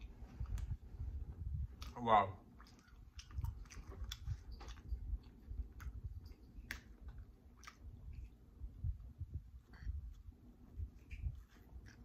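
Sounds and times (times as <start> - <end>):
wet mouth clicks and smacks: 1.6 - 8.4
person chewing food: 1.6 - 8.6, 9.5 - 12.0.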